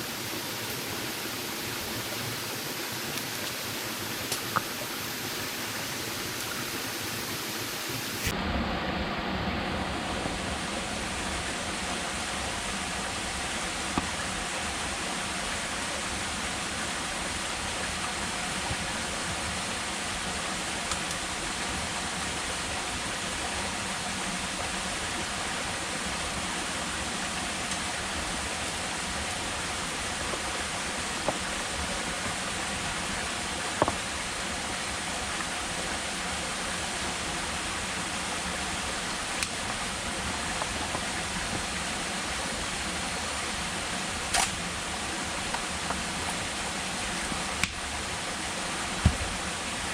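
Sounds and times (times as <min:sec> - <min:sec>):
steady rain in forest: 0:00.0 - 0:49.9.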